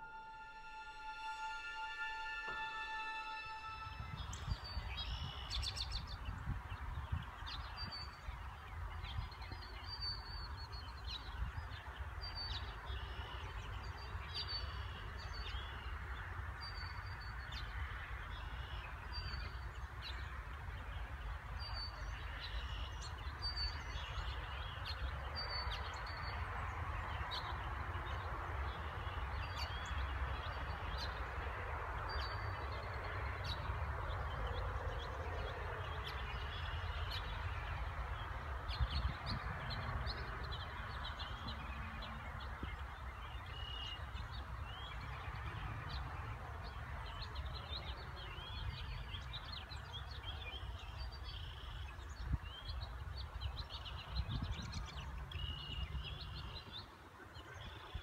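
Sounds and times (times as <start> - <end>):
short high bird call: 0.0 - 5.6
birds singing: 0.0 - 58.0.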